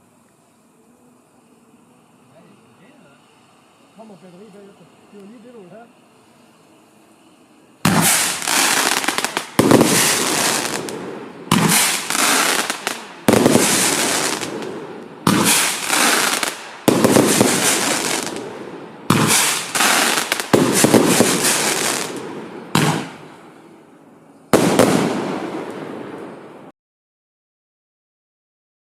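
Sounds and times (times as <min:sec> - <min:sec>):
firework battery shots: 0:06.5 - 0:23.9, 0:24.5 - 0:26.7.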